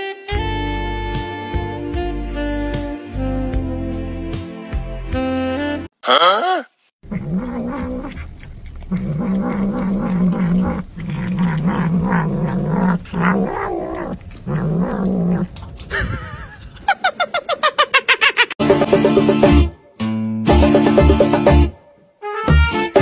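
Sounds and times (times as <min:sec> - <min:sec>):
cat growling: 0:07.0 - 0:15.6.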